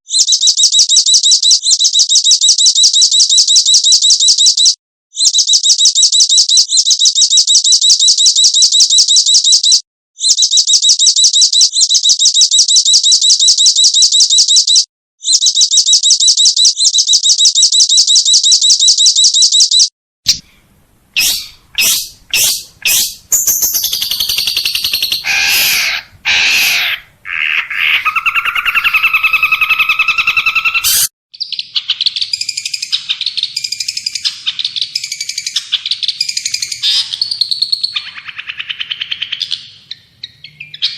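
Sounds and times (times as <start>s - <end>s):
chattering bird song: 0.1s - 20.4s, 21.1s - 40.9s
sharp bird chirps: 0.1s - 20.4s, 21.2s - 40.9s
fast high bird trill: 21.2s - 31.1s
buzzy wavering bird calls: 21.2s - 40.9s.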